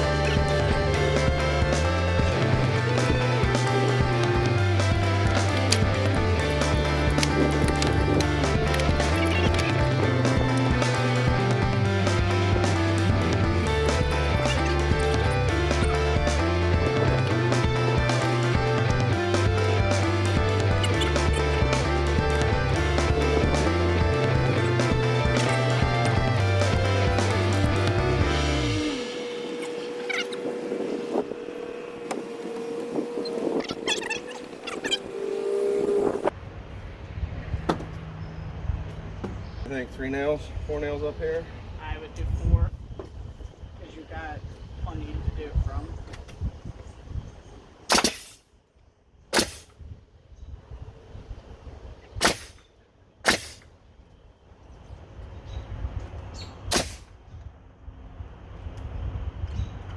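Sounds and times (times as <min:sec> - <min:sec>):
small motor humming: 0:00.0 - 0:36.3
nail gun shots: 0:47.9 - 0:48.4, 0:49.3 - 0:49.7, 0:52.2 - 0:52.6, 0:53.2 - 0:53.6, 0:56.7 - 0:57.1.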